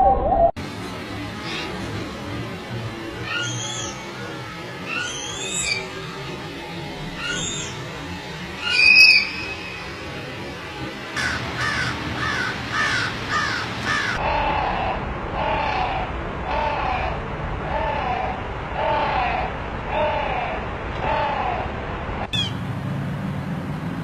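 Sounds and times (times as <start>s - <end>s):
low repeated bird call: 1.1s - 21.6s
loud harsh bird call: 3.2s - 4.1s, 4.9s - 6.0s, 7.2s - 7.8s, 8.6s - 10.0s, 11.2s - 21.6s
birds calling: 3.2s - 4.2s, 4.9s - 6.0s, 7.1s - 8.0s, 8.6s - 10.1s, 11.2s - 17.0s, 22.3s - 22.6s.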